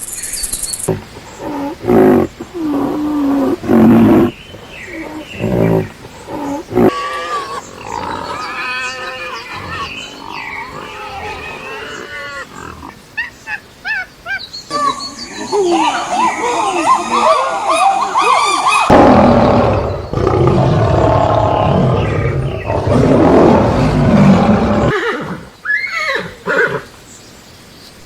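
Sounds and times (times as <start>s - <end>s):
low roaring animal calls: 0.8s - 13.0s, 15.8s - 25.5s.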